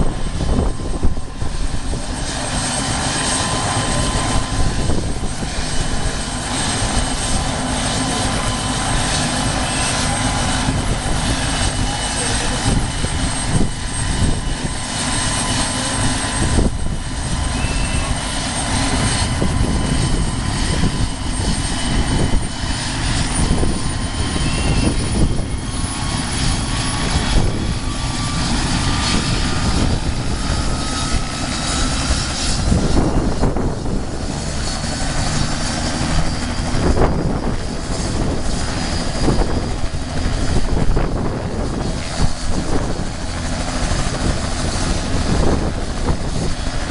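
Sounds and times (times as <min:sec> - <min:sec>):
helicopter rotor and engine: 0:00.0 - 0:46.9
thin high whines: 0:17.2 - 0:21.2.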